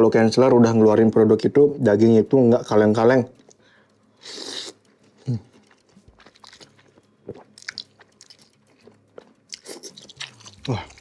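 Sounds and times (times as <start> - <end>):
person chewing crunchy food: 4.2 - 11.0.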